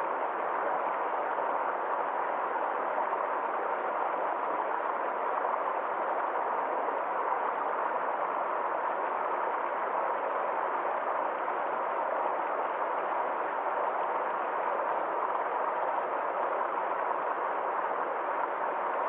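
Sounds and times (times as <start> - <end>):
stream water over small waterfall: 0.0 - 19.0.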